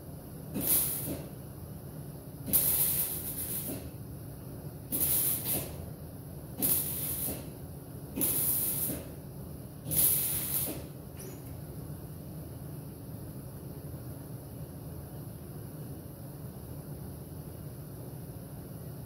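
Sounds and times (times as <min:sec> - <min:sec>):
steady low hum: 0:00.0 - 0:19.0
short spraying hiss: 0:00.6 - 0:01.3, 0:02.5 - 0:03.9, 0:04.9 - 0:05.8, 0:06.6 - 0:07.5, 0:09.9 - 0:10.9.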